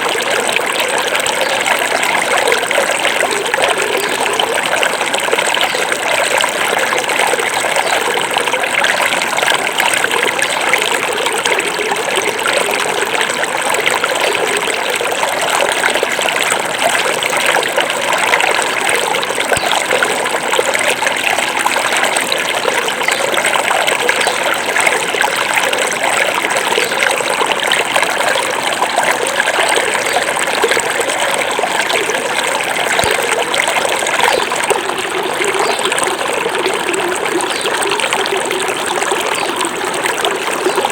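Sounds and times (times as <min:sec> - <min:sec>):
river running over stones: 0:00.0 - 0:40.9.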